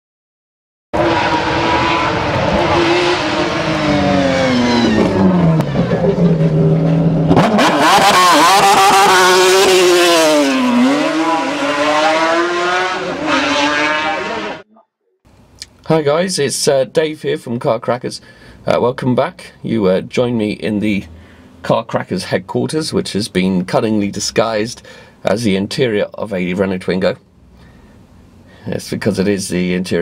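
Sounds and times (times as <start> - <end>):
car engine at high revs: 1.0 - 14.6.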